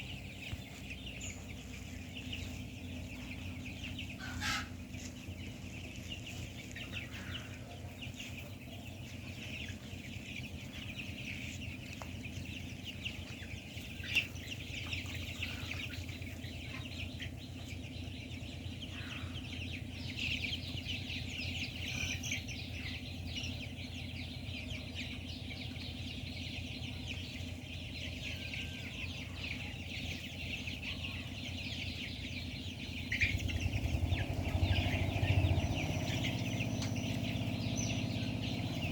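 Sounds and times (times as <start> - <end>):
chicks cheeping and clucking: 0.0 - 38.9
steady low hum: 0.0 - 38.9
low rumble: 32.0 - 38.9.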